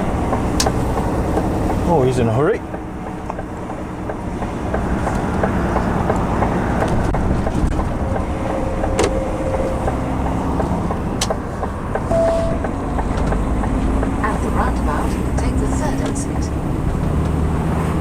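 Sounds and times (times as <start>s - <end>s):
lorry engine rumble: 0.0s - 18.0s
road noise inside cab: 0.0s - 18.0s
short tone: 12.1s - 12.8s.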